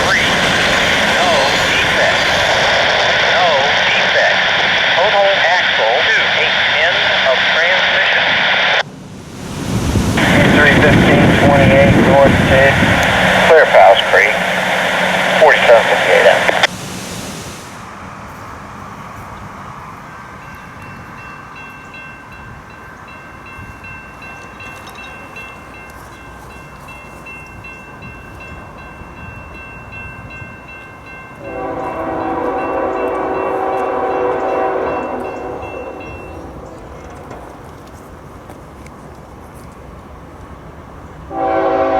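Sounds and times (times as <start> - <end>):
train noise: 0.0 - 41.9
locomotive air horn blast: 31.4 - 36.7, 41.3 - 41.9.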